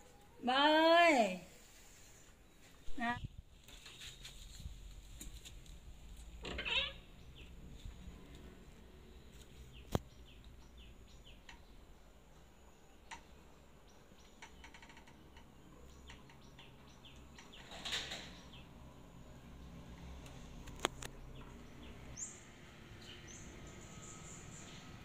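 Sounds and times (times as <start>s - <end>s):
brief rustle: 3.6s - 5.8s.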